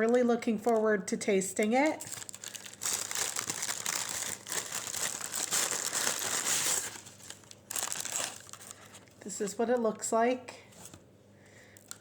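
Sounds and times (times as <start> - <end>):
paper packaging crinkling: 0.0 - 0.9, 1.6 - 9.9.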